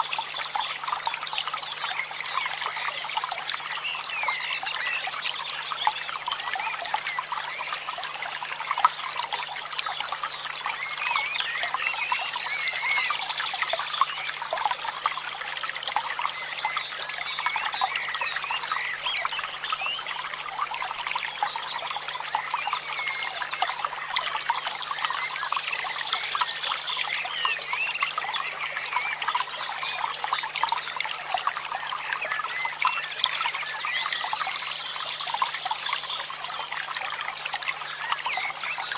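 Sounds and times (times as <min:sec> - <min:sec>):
water trickling and bubbling: 0:00.0 - 0:38.9.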